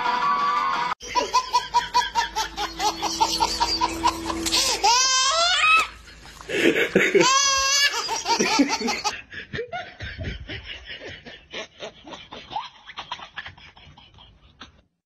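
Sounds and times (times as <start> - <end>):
person snickering: 6.0 - 7.4, 8.0 - 12.5.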